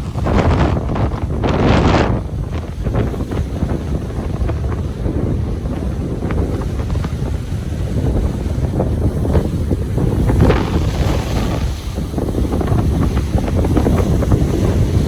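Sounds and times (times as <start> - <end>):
ocean surf on a beach: 0.0 - 15.0
wind buffeting microphone: 0.0 - 15.0.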